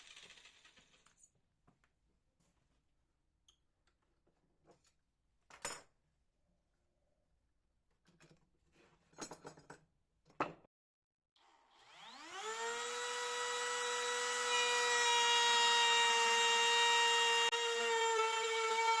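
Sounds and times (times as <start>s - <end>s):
bandsaw mill whining: 11.4s - 19.0s.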